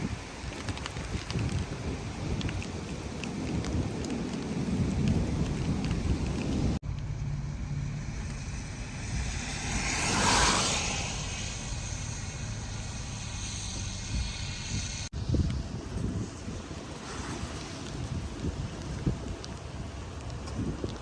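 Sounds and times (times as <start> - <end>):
heavy rain on vehicle: 0.0 - 7.1, 15.3 - 21.0
raindrop clicks: 0.0 - 7.2, 15.4 - 21.0
wind and road noise: 0.0 - 21.0
whoosh: 7.2 - 15.1, 16.8 - 18.3.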